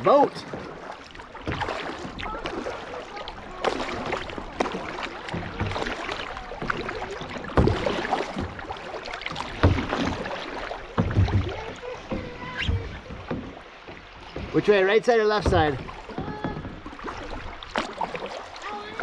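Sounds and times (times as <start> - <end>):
kayak paddles splashing: 0.0 - 19.0
knocks: 11.0 - 14.7, 15.3 - 16.8.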